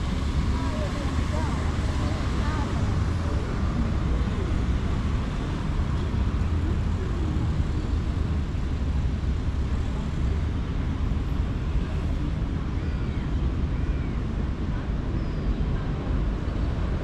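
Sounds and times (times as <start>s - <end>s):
city noise: 0.0s - 17.0s
low engine rumble: 0.0s - 17.0s.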